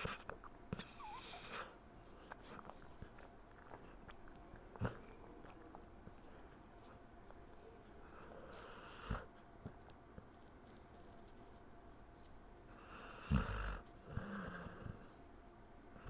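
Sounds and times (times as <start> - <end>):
dog snuffling breaths: 0.0 - 7.4, 8.0 - 15.2
dog whimper: 0.8 - 1.7.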